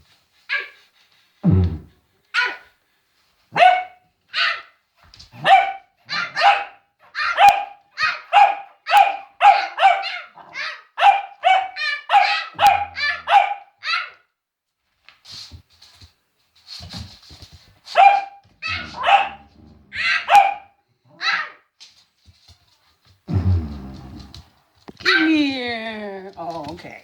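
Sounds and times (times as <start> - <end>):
dog barking: 2.4 - 2.7, 3.5 - 4.8, 5.4 - 14.2, 17.9 - 21.6.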